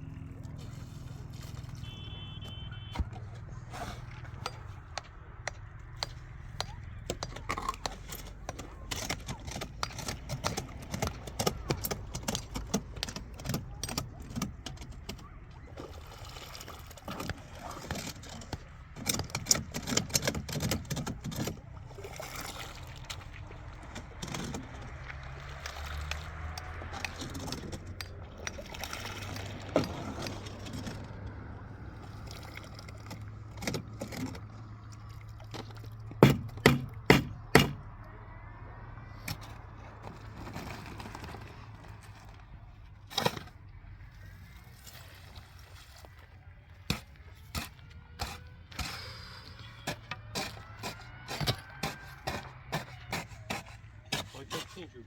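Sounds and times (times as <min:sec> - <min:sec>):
clinks and knocks of hard objects: 0:04.1 - 0:15.2.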